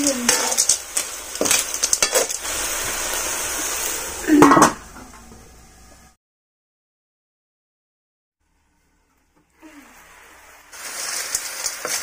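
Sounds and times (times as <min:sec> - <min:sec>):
snails sizzling in a wok: 0:00.0 - 0:05.0, 0:08.4 - 0:12.0
metal ladle scraping pan: 0:00.2 - 0:03.0.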